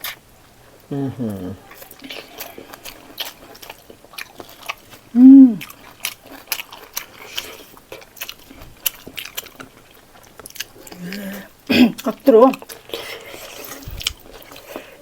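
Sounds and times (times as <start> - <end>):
person chewing food: 0.0 - 15.0
short hummed vocal sound: 0.9 - 1.7, 5.2 - 5.6.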